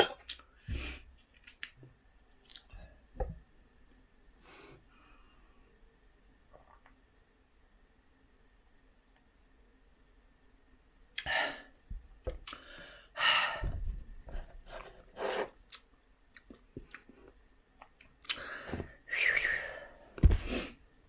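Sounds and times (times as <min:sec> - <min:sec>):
rustling and rubbing: 0:13.8 - 0:15.6.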